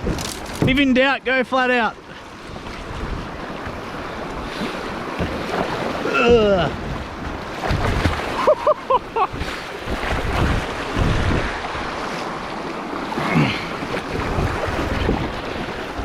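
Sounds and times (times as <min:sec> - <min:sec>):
wind buffeting microphone: 0:00.0 - 0:01.0, 0:02.4 - 0:05.7, 0:06.3 - 0:12.1, 0:13.7 - 0:16.0
river water rushing and splashing: 0:00.0 - 0:16.0.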